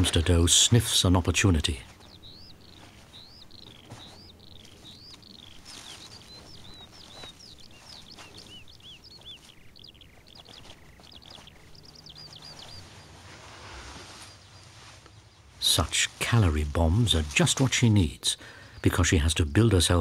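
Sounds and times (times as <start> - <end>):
soft ticks and rustles: 0.0 - 18.3
small birds chirping: 0.0 - 20.0.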